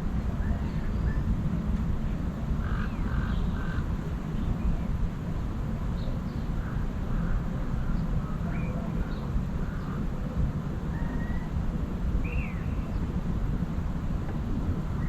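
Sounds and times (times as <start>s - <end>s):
steady low rumble: 0.0s - 15.0s
bird calls and chirps: 12.2s - 13.0s.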